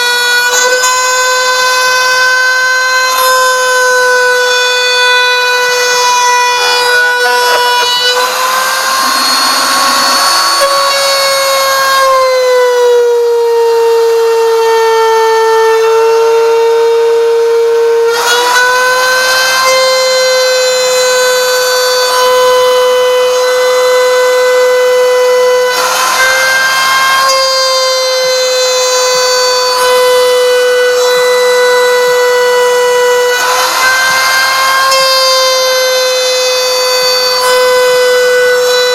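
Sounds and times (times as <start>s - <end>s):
router spindle whine: 2.6s - 14.8s, 18.1s - 38.9s.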